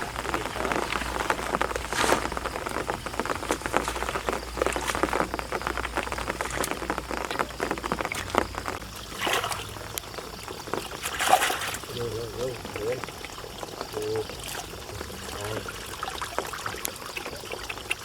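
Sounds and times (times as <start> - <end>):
rain pattering: 0.0 - 18.0
rush of splashing water: 0.0 - 18.0.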